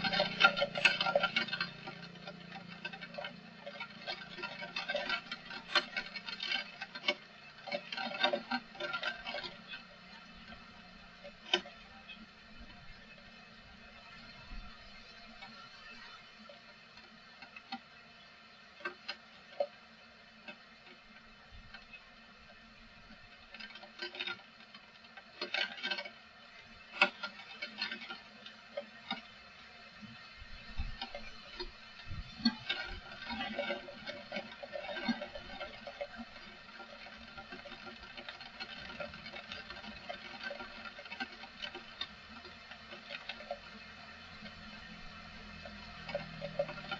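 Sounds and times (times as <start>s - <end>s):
rain dripping on hard surface: 27.6s - 46.9s.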